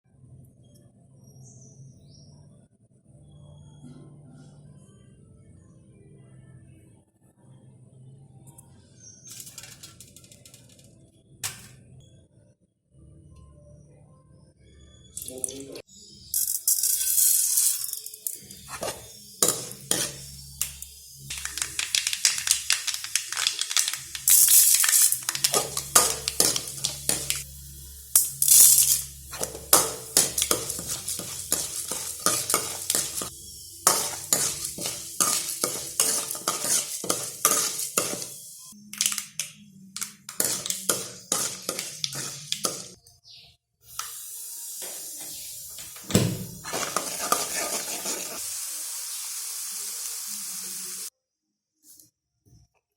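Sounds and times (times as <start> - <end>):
metal spoon clinking on pots: 16.4 - 27.5, 28.2 - 38.4, 39.0 - 43.0.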